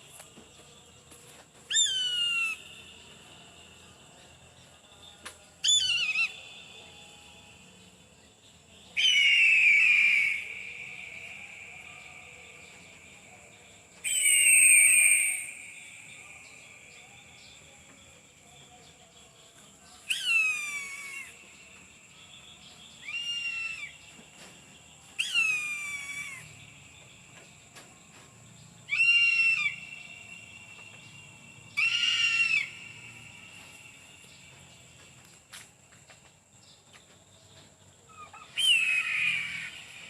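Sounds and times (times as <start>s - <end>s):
faint high whine: 0.0s - 36.2s
eagle screaming: 1.7s - 2.6s, 5.6s - 6.4s, 9.0s - 12.4s, 14.0s - 16.6s, 20.1s - 21.4s, 23.0s - 24.0s, 25.2s - 26.5s, 28.9s - 30.4s, 31.7s - 33.2s, 38.2s - 40.0s.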